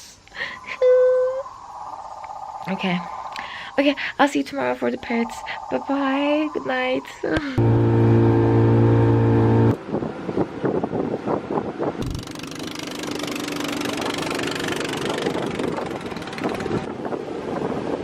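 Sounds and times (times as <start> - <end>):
wind on microphone: 0.6 - 18.0
engine running: 7.6 - 9.9, 12.0 - 16.9
loud droning tone: 7.6 - 10.0.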